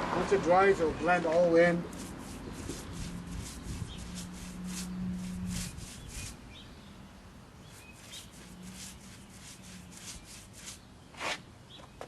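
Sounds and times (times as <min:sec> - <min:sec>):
bird chirping: 0:00.8 - 0:12.0
sealcoat scraping on asphalt: 0:01.0 - 0:06.6, 0:07.6 - 0:11.5.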